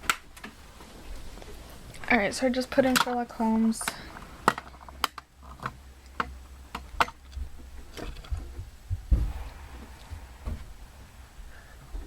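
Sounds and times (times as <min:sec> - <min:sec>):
faint low hum: 0:00.3 - 0:12.0.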